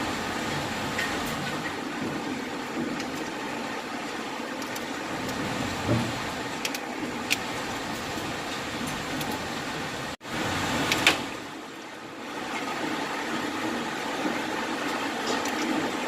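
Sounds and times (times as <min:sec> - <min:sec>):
rain and hail falling: 0:00.0 - 0:16.0
hailstones clicking: 0:00.9 - 0:09.5.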